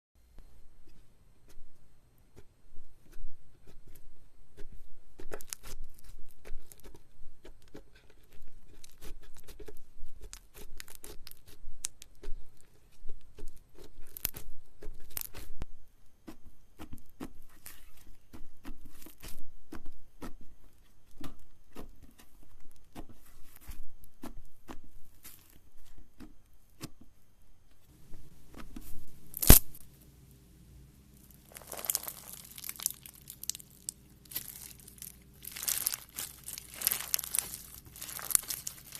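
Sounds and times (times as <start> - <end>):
slime snap: 29.3 - 29.8
slime sticky clicks and pops: 29.4 - 29.8, 31.5 - 38.9.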